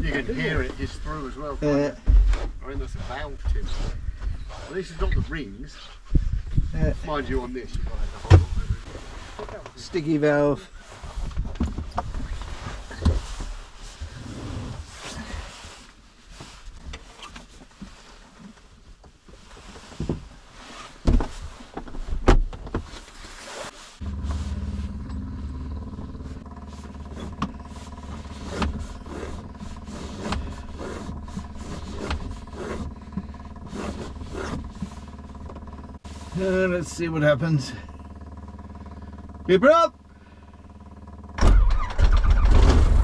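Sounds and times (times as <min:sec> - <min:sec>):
handling knocks and clunks: 0:01.8 - 0:05.2, 0:08.2 - 0:09.9, 0:11.1 - 0:14.2, 0:16.4 - 0:23.4, 0:24.0 - 0:36.4
steady mechanical hum: 0:23.0 - 0:43.0.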